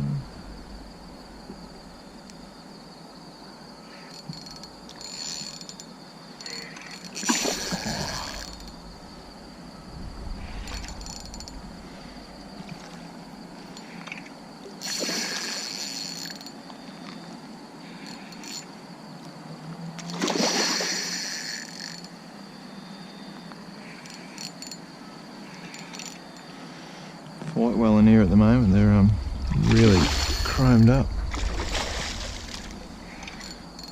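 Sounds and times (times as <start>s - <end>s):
night insects trilling: 0.0s - 33.9s
fish thrashing and splashing: 31.2s - 33.8s.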